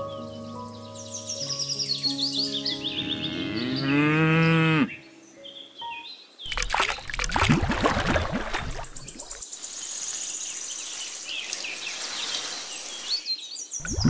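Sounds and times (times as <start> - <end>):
birds chirping: 0.0 - 7.2, 7.8 - 14.0
water sloshing and splashing: 6.5 - 9.4
insects chirping: 8.5 - 13.3.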